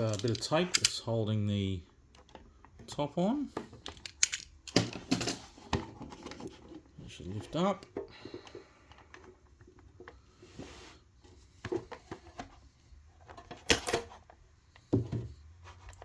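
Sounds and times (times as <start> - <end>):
sharp plastic clacks: 0.0 - 1.0, 3.6 - 5.0.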